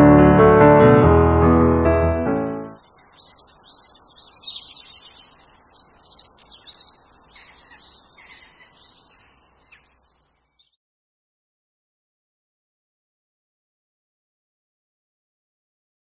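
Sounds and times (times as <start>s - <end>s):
small birds chirping: 2.4s - 10.8s.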